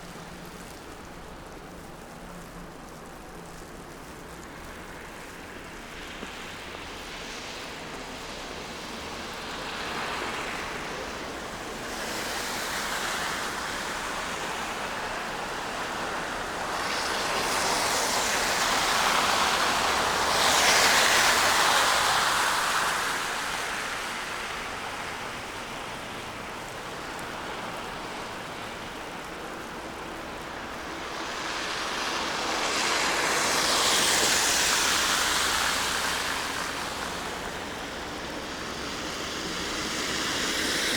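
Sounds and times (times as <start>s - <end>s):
tyres hissing on wet road: 0.0s - 40.9s.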